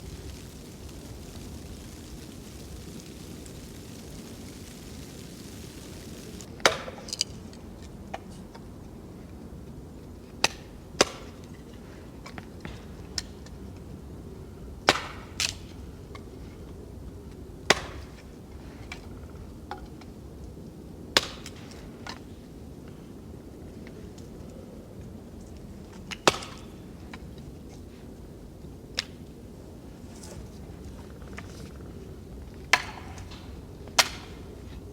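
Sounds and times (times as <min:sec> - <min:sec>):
low background hiss: 0:00.0 - 0:06.6.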